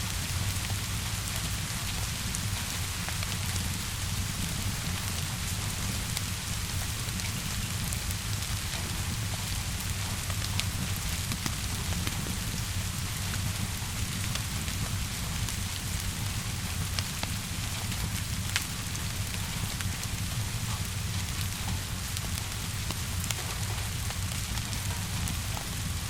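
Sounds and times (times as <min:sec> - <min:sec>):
steady rainfall: 0:00.0 - 0:26.0
wood fire crackling: 0:00.0 - 0:26.0.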